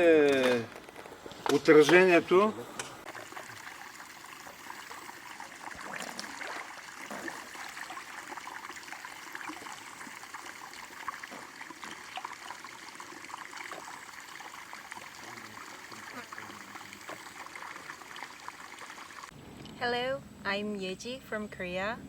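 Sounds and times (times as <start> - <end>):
river water babbling: 3.0 - 19.3.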